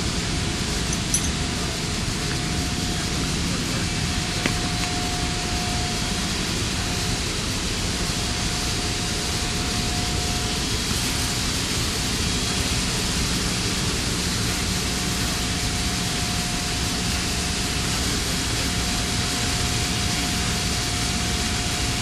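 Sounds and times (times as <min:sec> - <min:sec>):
mid-pitched whine: 0:00.0 - 0:13.2.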